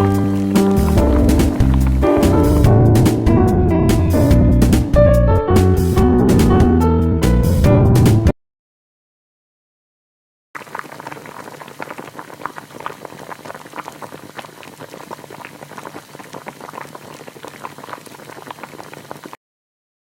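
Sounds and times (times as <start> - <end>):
stew bubbling in a pot: 0.6 - 3.2, 10.6 - 19.4.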